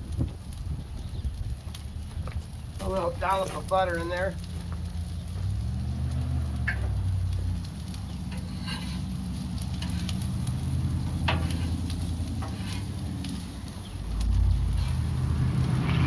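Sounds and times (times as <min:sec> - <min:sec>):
low rumble: 0:00.0 - 0:16.0
vegetables sizzling in butter: 0:05.2 - 0:16.0
utensil scraping and tapping: 0:08.3 - 0:13.5.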